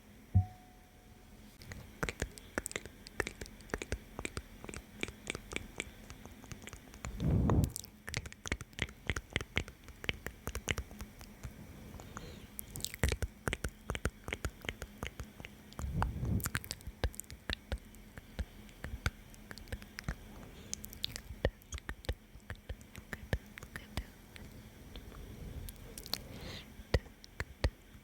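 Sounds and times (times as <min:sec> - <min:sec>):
wet lip and tongue clicks: 0:01.6 - 0:25.1, 0:25.7 - 0:26.2
soft breathing: 0:07.0 - 0:07.8, 0:11.3 - 0:13.0, 0:14.7 - 0:16.8, 0:18.2 - 0:21.5, 0:22.8 - 0:27.7.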